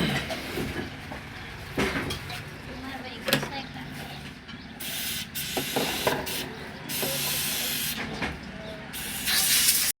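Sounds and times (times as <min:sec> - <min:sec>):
hissing air nozzle blasts: 0:09.0 - 0:10.0.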